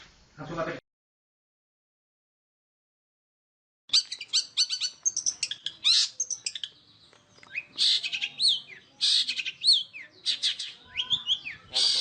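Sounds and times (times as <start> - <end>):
shrike singing: 3.9 - 12.0.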